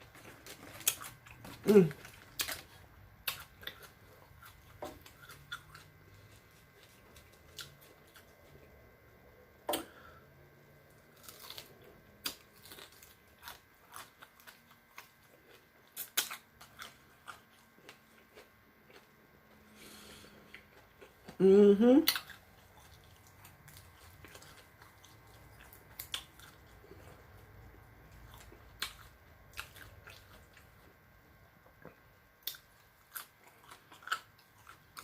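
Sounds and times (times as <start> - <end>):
crunching chicken wings: 0.0 - 8.6, 11.0 - 19.0.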